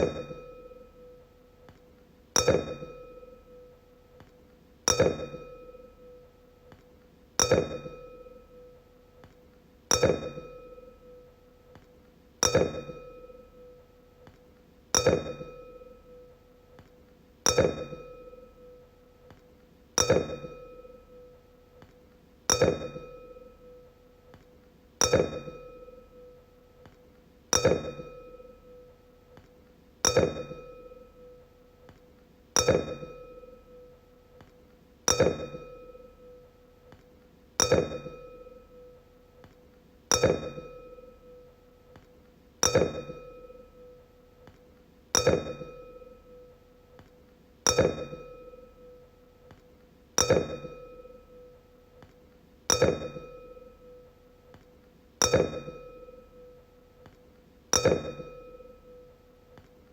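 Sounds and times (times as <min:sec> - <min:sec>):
wine glass tapped and ringing: 0:00.0 - 0:01.2, 0:02.4 - 0:03.7, 0:04.9 - 0:06.2, 0:07.4 - 0:08.7, 0:09.9 - 0:11.3, 0:12.4 - 0:13.8, 0:15.0 - 0:16.4, 0:17.5 - 0:18.8, 0:20.0 - 0:21.4, 0:22.5 - 0:23.9, 0:25.0 - 0:28.9, 0:30.0 - 0:32.0, 0:32.6 - 0:34.5, 0:35.1 - 0:37.0, 0:37.6 - 0:39.5, 0:40.1 - 0:44.6, 0:45.2 - 0:47.1, 0:47.7 - 0:49.6, 0:50.2 - 0:52.1, 0:52.7 - 0:54.6, 0:55.2 - 0:59.7.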